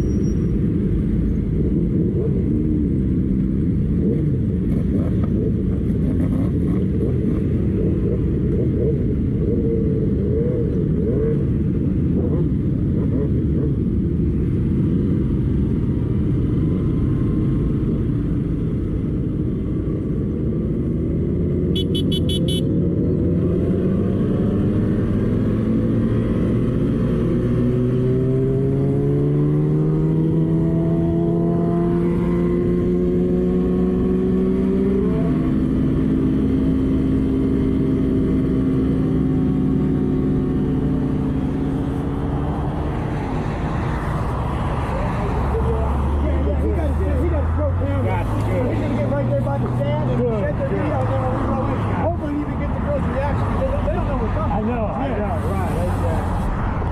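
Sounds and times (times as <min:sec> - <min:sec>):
road and wind noise: 0:00.0 - 0:56.9
motorcycle engine: 0:20.9 - 0:45.7.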